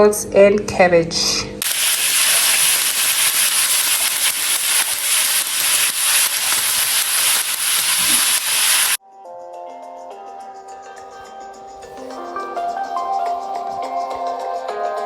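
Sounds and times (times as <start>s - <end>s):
food sizzling in a pan: 1.6s - 9.0s.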